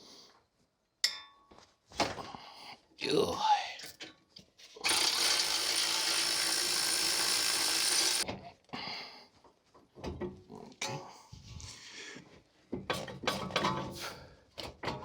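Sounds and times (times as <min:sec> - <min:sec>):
handheld power tool running: 0:04.8 - 0:08.2.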